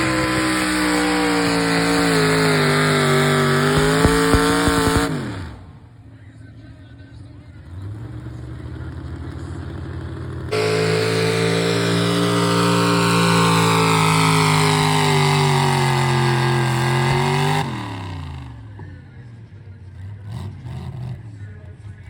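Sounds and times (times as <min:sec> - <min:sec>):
truck engine at full throttle: 0:00.0 - 0:22.0.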